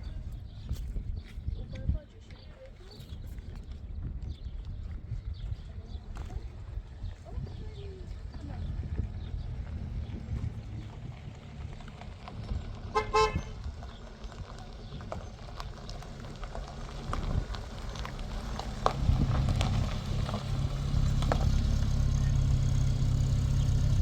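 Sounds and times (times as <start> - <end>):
vehicle engine running low: 5.4 - 24.0
car horn toot: 12.9 - 13.6.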